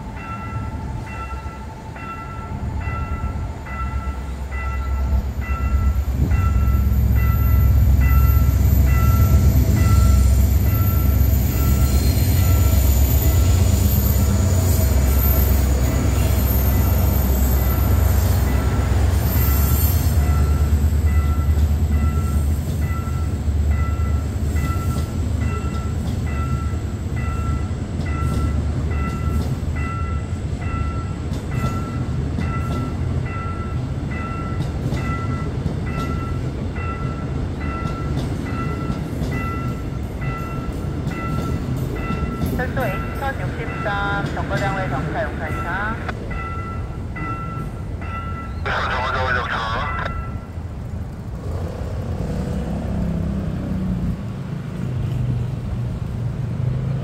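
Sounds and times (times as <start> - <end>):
crossing warning bell dinging: 0.0 - 51.6
train wheels rumbling on rails: 0.0 - 57.0
faint high wheel squeal: 7.2 - 20.7.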